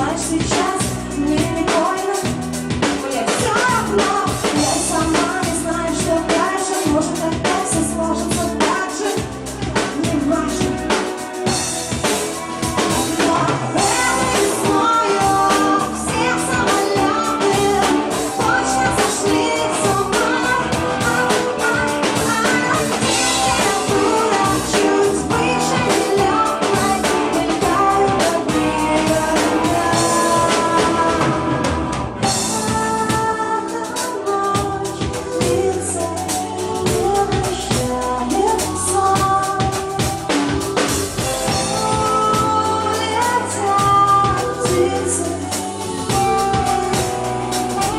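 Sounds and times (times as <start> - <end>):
bass guitar: 0.0 - 47.9
drum kit: 0.0 - 47.9
electric guitar: 0.0 - 47.9
person singing: 0.0 - 47.9.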